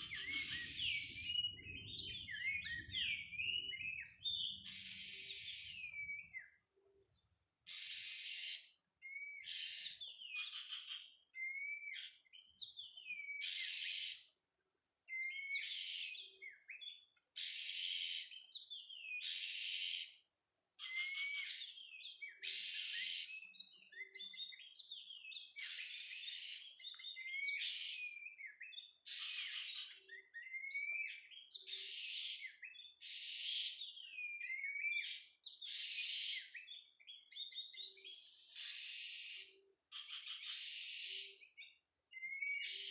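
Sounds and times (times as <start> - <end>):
bird whistled phrases: 0.0 - 6.5, 20.8 - 42.9.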